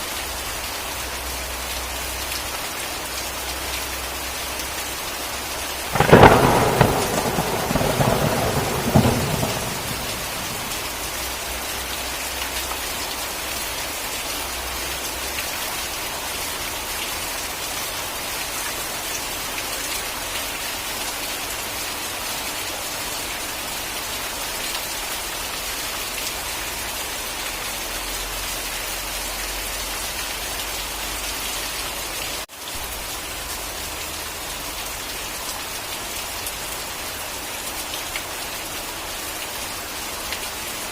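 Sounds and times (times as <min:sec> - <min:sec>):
steady rain falling: 0:00.0 - 0:40.9
thunderclap rumble: 0:05.9 - 0:11.4.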